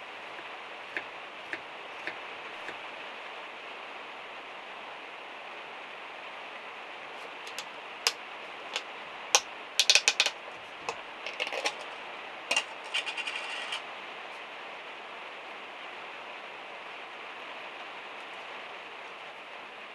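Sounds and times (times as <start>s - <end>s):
sharp clicks and light knocks: 7.4s - 7.7s, 9.4s - 11.9s
rattle of small ticks: 7.5s - 7.7s, 9.4s - 11.9s, 12.5s - 13.8s.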